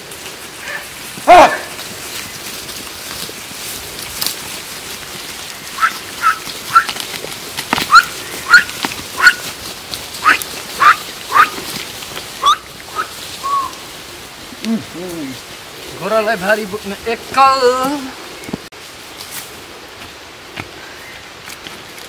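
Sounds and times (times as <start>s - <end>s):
background hiss: 0.0s - 22.0s
bird rising chirps: 12.4s - 13.8s.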